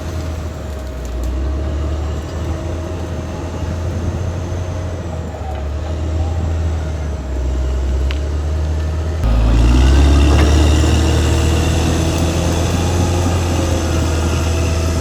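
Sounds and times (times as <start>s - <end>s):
bulldozer diesel engine droning: 0.0s - 15.0s.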